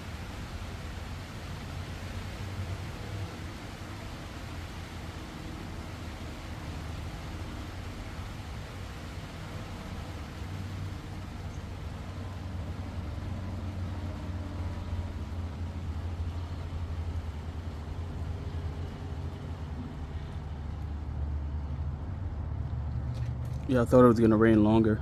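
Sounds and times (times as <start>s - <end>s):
rain falling: 0.0s - 23.6s
low steady rumble: 0.0s - 25.0s.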